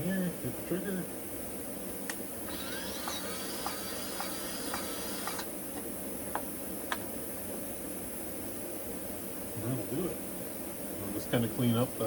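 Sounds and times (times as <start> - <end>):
grease gun motor whine: 2.4 - 5.5.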